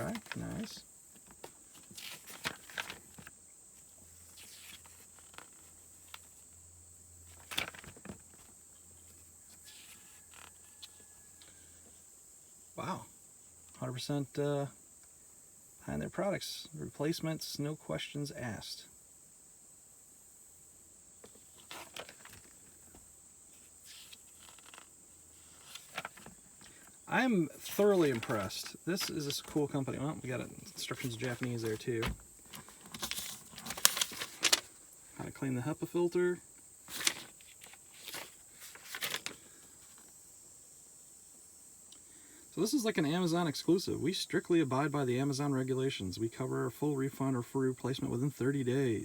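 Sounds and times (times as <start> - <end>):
paper booklet rustling and taps: 0.0 - 3.3, 4.3 - 6.4, 7.3 - 8.6, 21.2 - 23.1, 23.9 - 24.9, 25.5 - 26.9, 27.5 - 29.8, 30.6 - 35.3, 36.9 - 40.1
faint high-pitched whine: 0.0 - 49.0
high-pitched hiss: 8.6 - 49.0.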